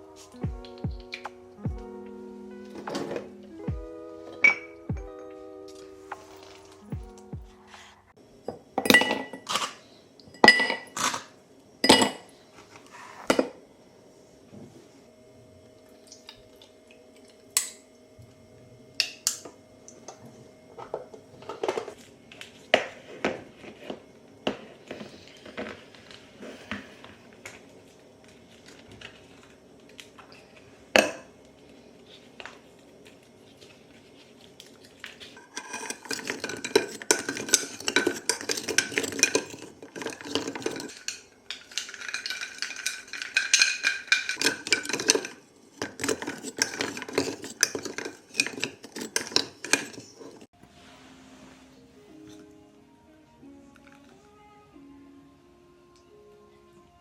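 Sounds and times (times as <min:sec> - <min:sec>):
dishes and cutlery clinking: 0:02.7 - 0:03.3, 0:04.3 - 0:06.9, 0:08.5 - 0:12.3, 0:20.8 - 0:22.0, 0:35.0 - 0:50.5
utensil clattering and scraping dish: 0:08.8 - 0:09.8, 0:10.4 - 0:12.2, 0:20.8 - 0:22.0, 0:35.2 - 0:50.5.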